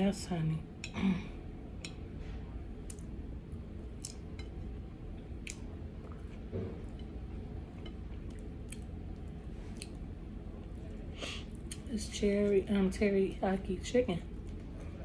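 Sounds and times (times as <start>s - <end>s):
steady low hum: 0.0s - 15.0s
person chewing: 3.9s - 4.6s, 5.2s - 11.9s.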